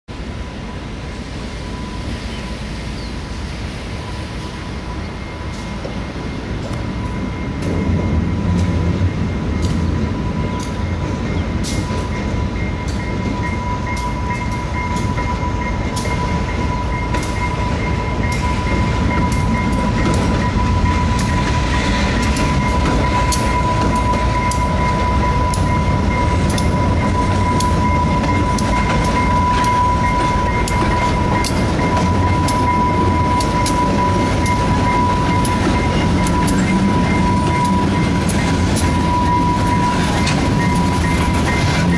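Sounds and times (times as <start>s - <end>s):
diesel locomotive rumble: 0.1s - 41.9s
steady high-pitched tone: 0.2s - 41.9s
wheels clicking over rail joints: 6.6s - 41.9s.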